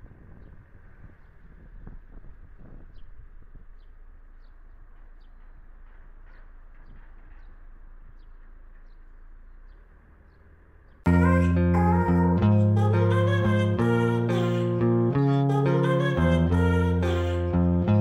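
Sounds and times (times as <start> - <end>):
steady low rumble: 0.0 - 18.0
bird chirping: 2.8 - 11.6.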